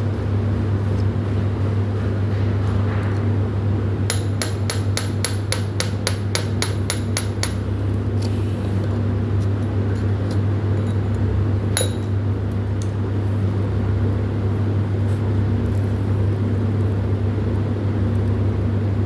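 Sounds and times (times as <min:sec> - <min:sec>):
hammer striking metal: 0:04.1 - 0:07.6.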